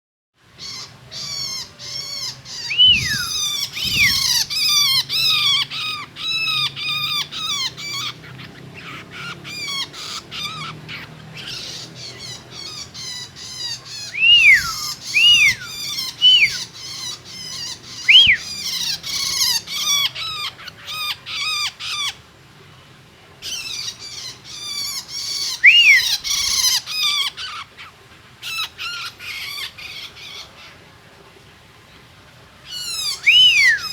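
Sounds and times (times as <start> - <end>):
down-slurred bird whistles: 2.5 - 5.4, 14.1 - 16.7, 18.0 - 18.7, 25.4 - 26.5, 33.1 - 33.9.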